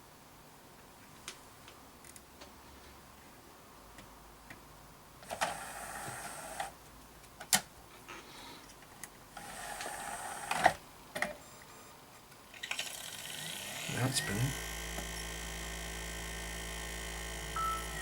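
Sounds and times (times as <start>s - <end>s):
disc drive clicking and whirring: 13.4s - 18.0s.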